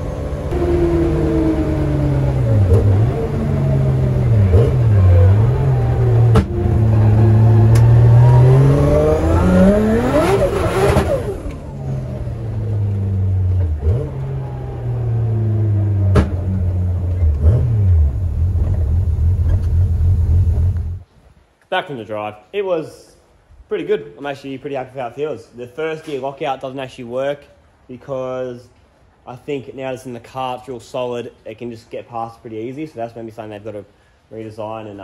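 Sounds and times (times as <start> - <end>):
car engine revving in cabin: 0.0 - 21.0.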